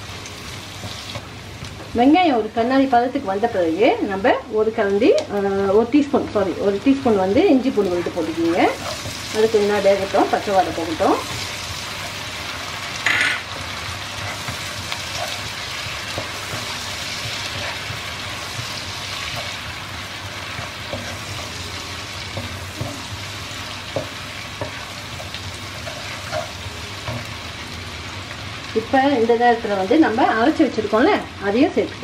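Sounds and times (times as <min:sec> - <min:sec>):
onions sizzling in oil: 0:00.0 - 0:32.0
wooden spatula scraping: 0:07.9 - 0:12.2, 0:13.9 - 0:19.7.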